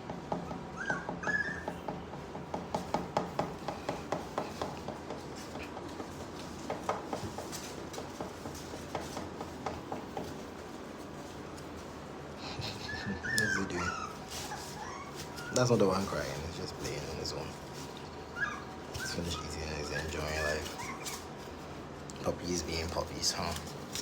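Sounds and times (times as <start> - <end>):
puppy squeaks: 0.4 - 1.9, 12.7 - 16.3, 18.3 - 21.4.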